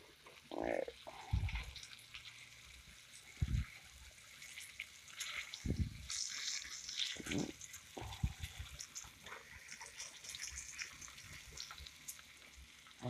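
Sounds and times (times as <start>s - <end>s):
pork chop sizzling in oil: 0.0s - 13.0s.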